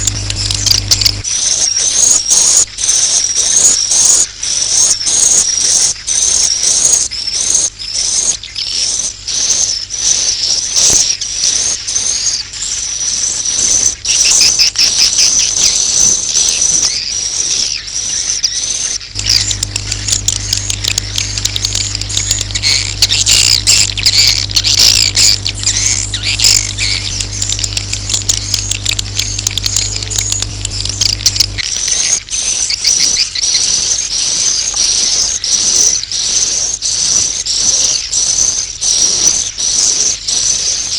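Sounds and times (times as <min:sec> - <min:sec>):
low hum: 0:00.0 - 0:01.2, 0:19.1 - 0:32.6
high twittering bird chirps: 0:00.0 - 0:40.9.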